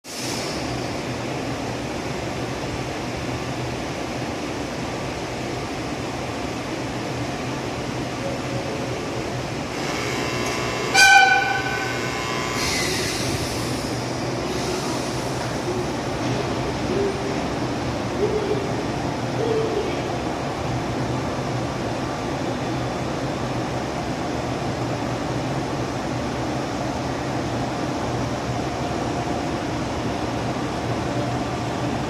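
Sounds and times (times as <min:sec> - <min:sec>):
brief hiss: 0:00.1 - 0:00.7, 0:12.5 - 0:15.6
locomotive humming: 0:05.4 - 0:21.0
locomotive horn blast: 0:09.8 - 0:12.8.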